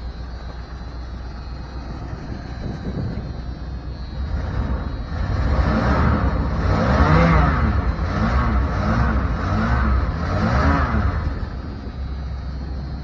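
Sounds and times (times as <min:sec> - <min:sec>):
pickup engine revving: 0:04.2 - 0:12.0.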